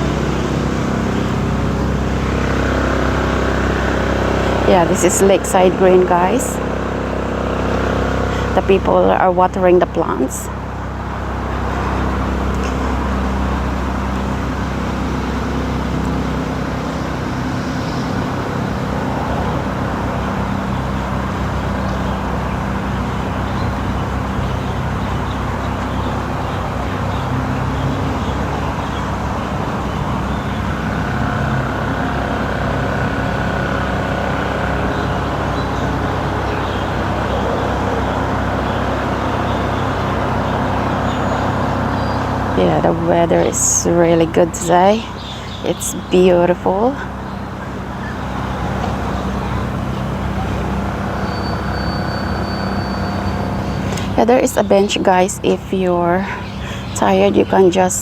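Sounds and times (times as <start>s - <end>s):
continuous rushing hiss: 0.0s - 58.0s
vehicle engine noise: 0.0s - 58.0s.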